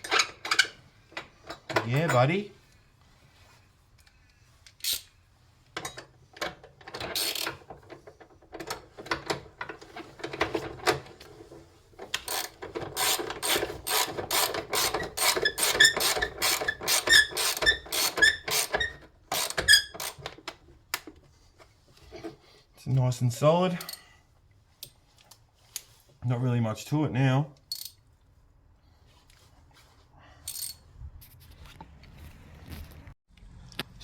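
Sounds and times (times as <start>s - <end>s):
ratchet wrench clicking: 12.2s - 20.2s.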